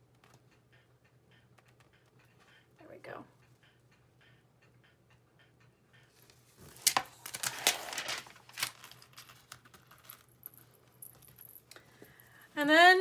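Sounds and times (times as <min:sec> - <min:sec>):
paper backing crinkling: 0:06.6 - 0:10.3.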